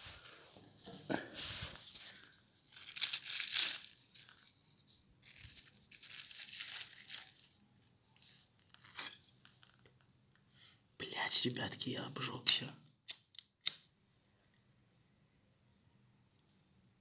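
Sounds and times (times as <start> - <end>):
plastic bag crinkling and tearing: 1.9 - 4.5, 5.2 - 7.6.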